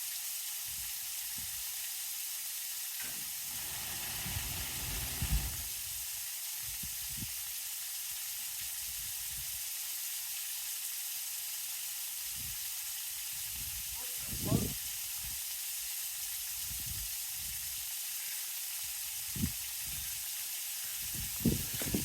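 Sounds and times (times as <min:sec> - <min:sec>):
water running from a hose: 0:00.0 - 0:22.0
low rumbling bumps: 0:03.1 - 0:05.8, 0:21.2 - 0:22.0.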